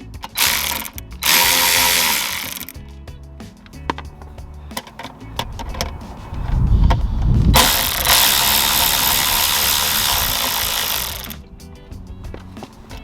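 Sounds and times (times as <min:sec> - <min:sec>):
hand ratchet clicking: 0:00.0 - 0:02.8, 0:06.8 - 0:11.4
loud steady rushing noise: 0:04.8 - 0:11.4.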